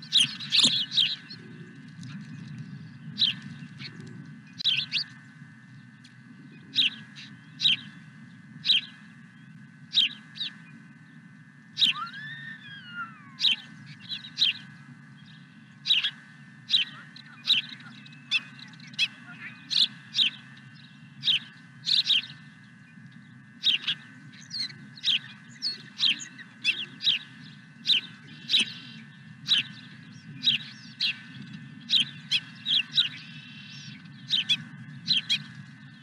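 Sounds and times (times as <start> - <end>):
small birds chirping: 0.0 - 36.0
steady low hum: 0.0 - 36.0
bird whistle rising and falling: 11.8 - 14.5.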